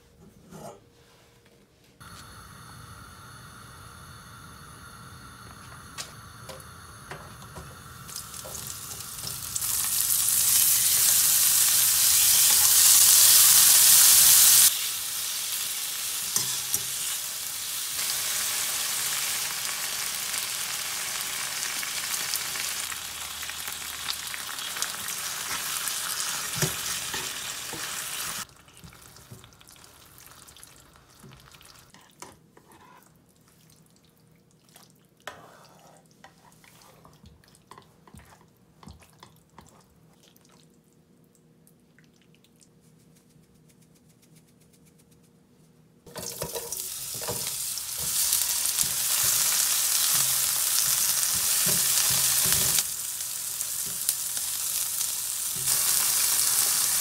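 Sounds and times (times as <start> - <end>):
bacon and onion sizzling in pan: 2.0 - 31.9, 46.1 - 57.0
tongs clicking and scraping in pan: 16.2 - 17.2, 46.1 - 52.9.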